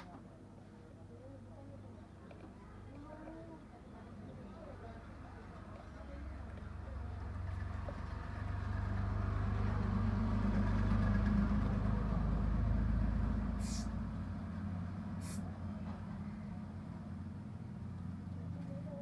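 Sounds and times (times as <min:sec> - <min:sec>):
vehicle engine rumble passing: 0:02.0 - 0:19.0
short hisses: 0:13.5 - 0:14.0, 0:15.1 - 0:15.6.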